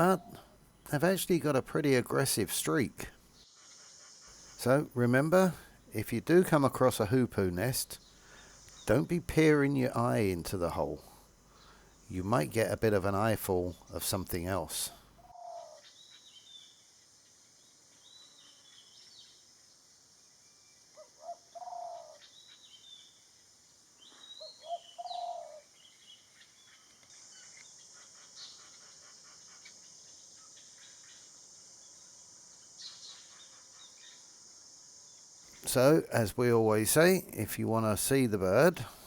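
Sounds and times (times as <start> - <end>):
bird low hooting coos: 0.0 - 0.6, 15.2 - 15.9, 21.0 - 22.3, 24.4 - 25.7
small birds chirping: 0.0 - 3.6, 4.3 - 19.5, 24.0 - 39.0
high insect hiss: 0.0 - 15.2, 15.9 - 21.3, 21.9 - 24.7, 25.4 - 39.0.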